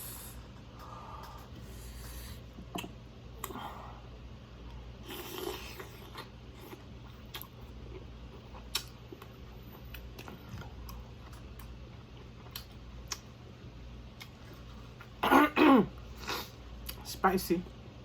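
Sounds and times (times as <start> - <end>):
chewing and eating: 4.6 - 13.5, 14.1 - 15.2
mouth clicks and smacks: 8.7 - 9.0.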